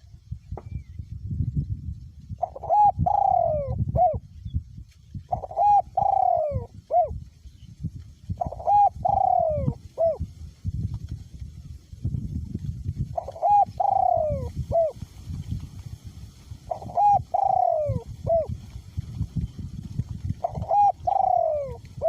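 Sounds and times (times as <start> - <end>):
wind rumble on microphone: 0.0 - 22.0
dove cooing: 2.4 - 4.2, 5.3 - 7.2, 8.4 - 10.2, 13.2 - 15.0, 16.7 - 18.6, 20.4 - 22.0.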